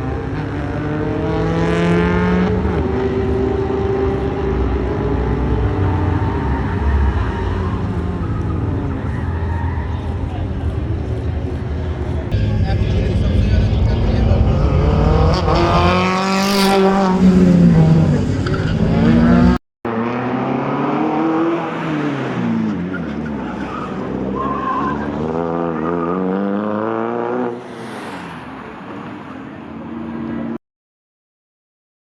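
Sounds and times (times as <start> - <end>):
car engine revving hard: 12.6 - 22.6.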